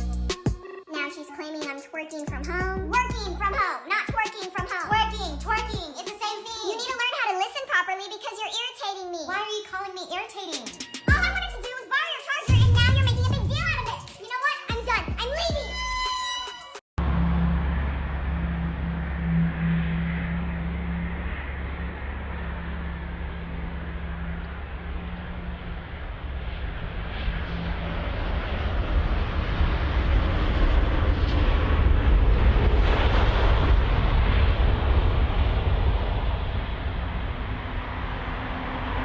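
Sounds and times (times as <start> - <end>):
airplane engines rumbling: 11.1 - 11.8, 12.5 - 16.4, 17.0 - 39.0.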